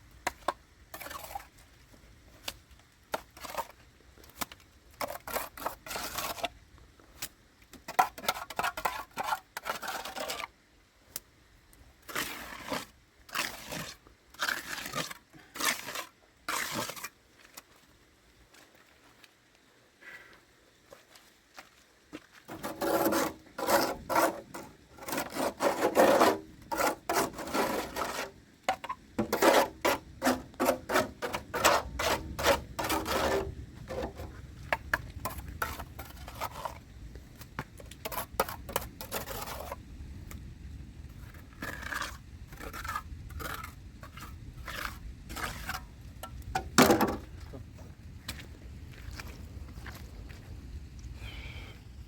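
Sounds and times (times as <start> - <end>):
rough scraping strokes: 3.1 - 3.8, 5.0 - 6.5, 7.9 - 10.5, 12.0 - 17.2, 22.5 - 36.9, 38.0 - 39.8, 41.2 - 47.2.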